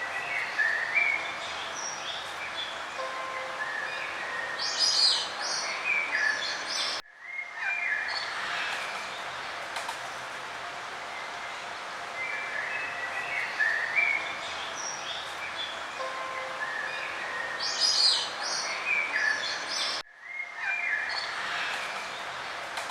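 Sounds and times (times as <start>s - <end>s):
songbirds chirping and singing: 0.0s - 9.6s, 11.1s - 22.8s
steady background hiss: 0.0s - 22.9s.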